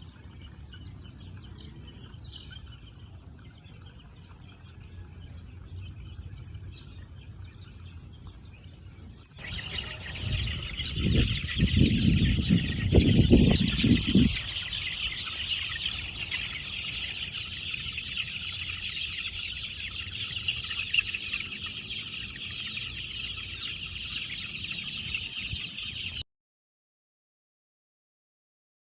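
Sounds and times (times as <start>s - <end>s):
chickens clucking: 9.4s - 26.2s.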